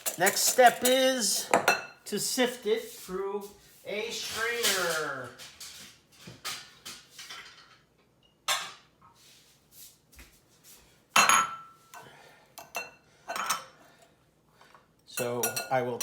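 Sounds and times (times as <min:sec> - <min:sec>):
kitchenware knocking and clinking: 0:00.0 - 0:02.0, 0:04.6 - 0:08.9, 0:11.2 - 0:11.8, 0:12.6 - 0:13.7, 0:15.2 - 0:16.0.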